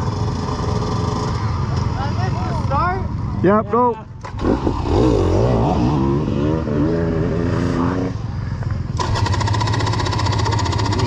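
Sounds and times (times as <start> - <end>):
fast mechanical chatter: 9.0 - 11.0.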